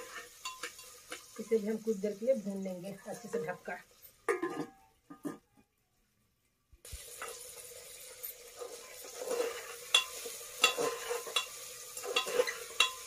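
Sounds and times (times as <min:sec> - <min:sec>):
metal spatula scraping a pot: 0:00.0 - 0:01.5, 0:08.1 - 0:13.0
vegetables sizzling in a pot: 0:00.0 - 0:05.0, 0:06.8 - 0:13.0.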